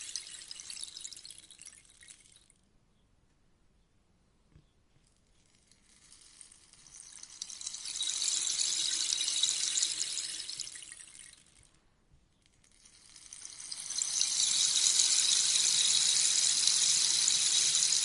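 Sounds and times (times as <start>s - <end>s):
rainstick pellets cascading: 0.0s - 2.5s, 5.4s - 11.7s, 12.6s - 18.0s.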